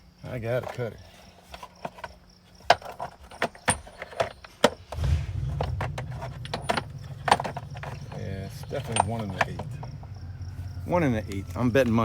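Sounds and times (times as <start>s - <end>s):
metal tools clinking: 0.6s - 12.0s
low mechanical rumble: 4.6s - 12.0s.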